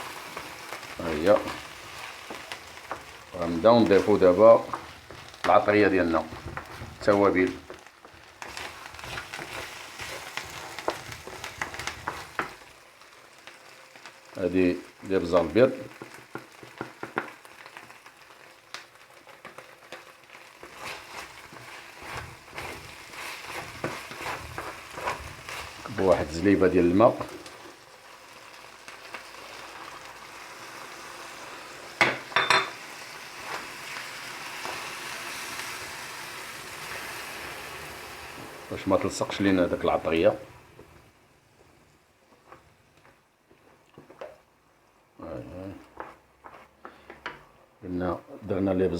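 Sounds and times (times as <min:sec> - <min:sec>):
food sizzling in a pan: 0:00.0 - 0:47.4
stirring clicks and scrapes: 0:00.3 - 0:12.7, 0:18.8 - 0:26.3.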